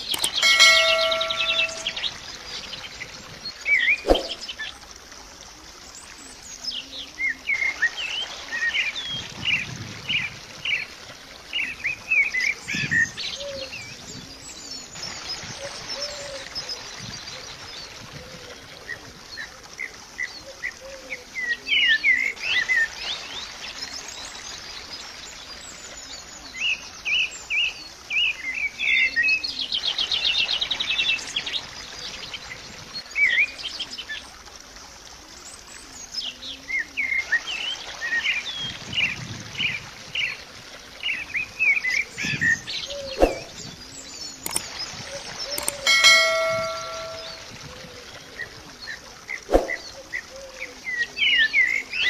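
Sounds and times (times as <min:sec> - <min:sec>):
birds chirping: 0:00.0 - 0:02.6, 0:03.7 - 0:04.6, 0:41.8 - 0:47.6
short chime: 0:00.2 - 0:02.1, 0:45.7 - 0:47.5.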